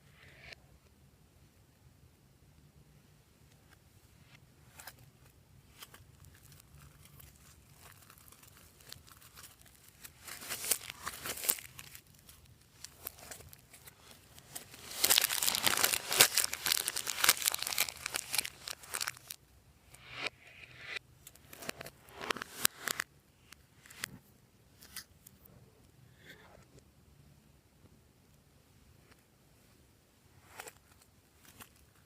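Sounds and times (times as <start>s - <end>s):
slime crackling by hand: 5.8s - 19.4s.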